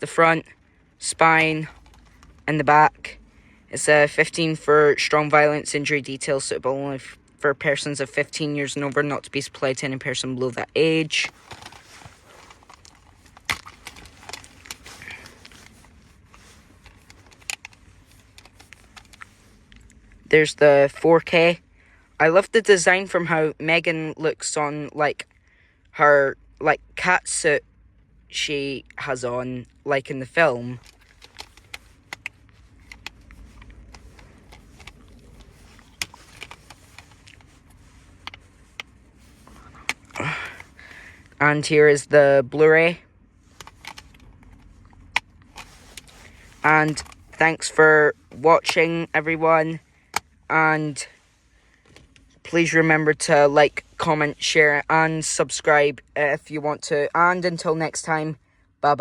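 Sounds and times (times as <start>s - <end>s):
low steady hum: 0.0s - 59.0s
rustling: 0.5s - 2.5s, 11.1s - 20.4s, 29.7s - 41.4s, 43.4s - 52.7s
plastic case clicking: 11.4s - 16.0s.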